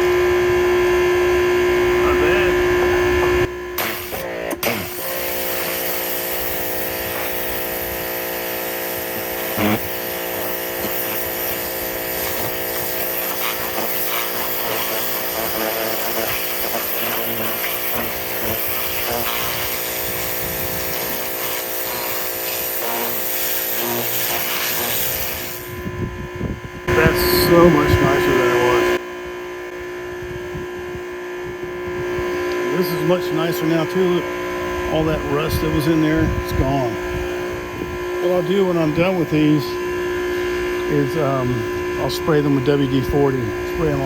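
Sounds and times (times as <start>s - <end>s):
pressure washer motor humming: 0.0s - 29.0s, 32.4s - 44.0s
water spray hissing: 3.8s - 25.7s.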